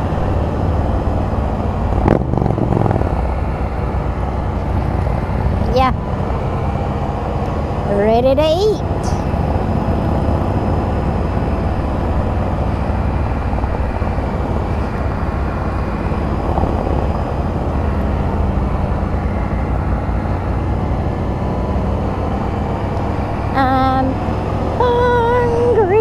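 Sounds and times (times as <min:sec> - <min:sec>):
wind on microphone: 0:00.0 - 0:06.4, 0:08.9 - 0:19.1
motorcycle engine running: 0:00.0 - 0:07.0, 0:08.0 - 0:20.7.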